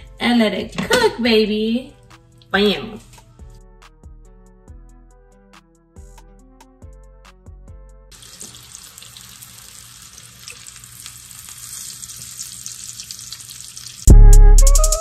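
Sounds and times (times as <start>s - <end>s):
music: 0.0s - 8.2s, 14.1s - 15.0s
fish sizzling in a pan: 8.1s - 14.1s.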